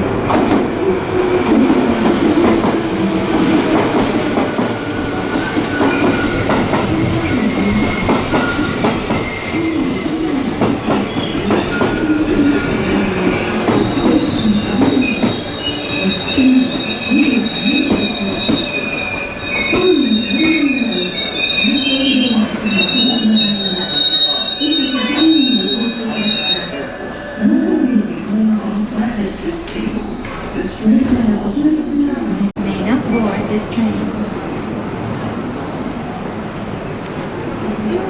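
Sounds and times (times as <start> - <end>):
train wheels clattering: 1.5 - 16.3
train wheels squealing: 4.7 - 27.5.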